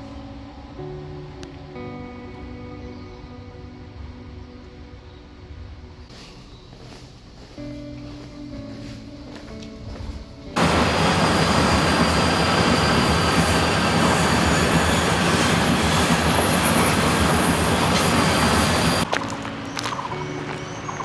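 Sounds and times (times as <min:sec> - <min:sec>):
train wheels rushing on track: 0:10.6 - 0:19.1
high whine: 0:10.6 - 0:21.0.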